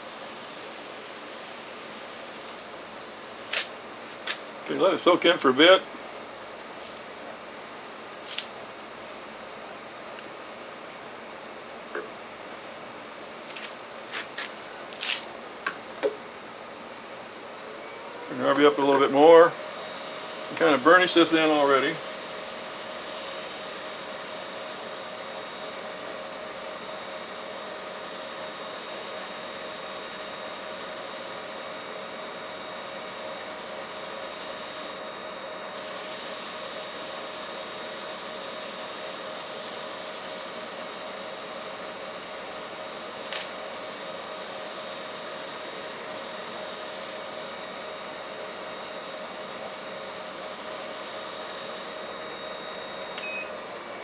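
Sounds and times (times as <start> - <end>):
wood lathe motor hum and whine: 15.6 - 54.0.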